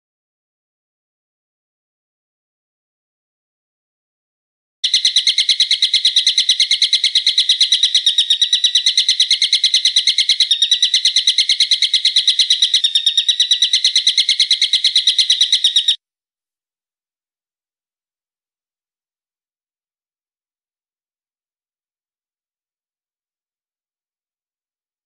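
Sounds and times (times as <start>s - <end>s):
bird trilling: 4.8s - 16.0s.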